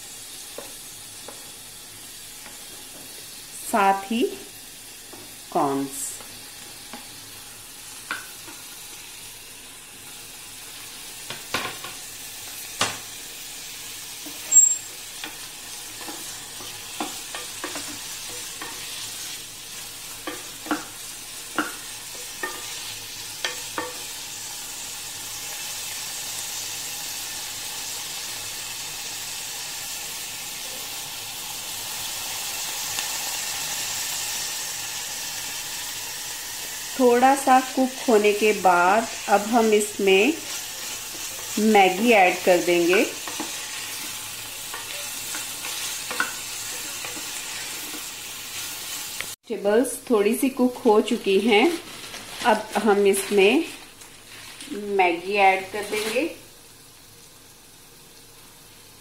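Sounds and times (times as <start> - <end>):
vegetables sizzling in hot oil: 0.0 - 59.0
spatula tapping and scraping pan: 14.2 - 19.1, 20.2 - 24.2, 40.4 - 48.2.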